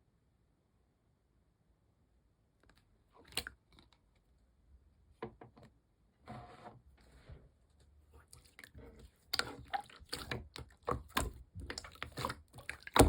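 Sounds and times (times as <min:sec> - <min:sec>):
slime squishing by hand: 0:08.0 - 0:13.0.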